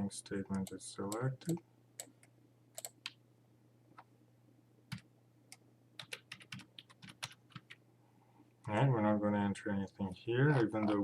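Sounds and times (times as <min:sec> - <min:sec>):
keyboard typing: 0:00.5 - 0:03.2, 0:06.0 - 0:07.8.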